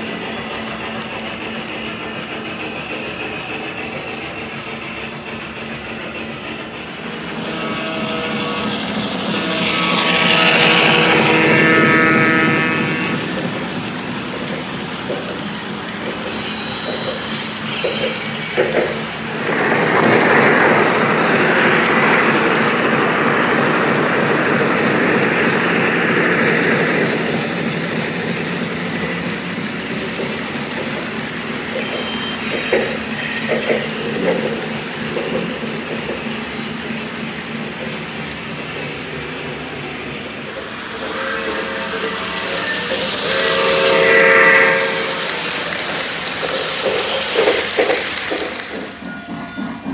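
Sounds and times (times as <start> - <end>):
model train running: 0.0 - 49.9
steam whistle: 7.3 - 13.4, 40.4 - 47.7.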